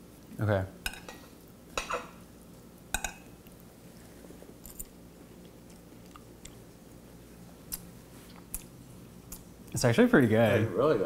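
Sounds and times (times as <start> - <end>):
fork clinking on a plate: 0.9 - 2.2, 2.9 - 3.3
faint chewing: 2.5 - 9.8.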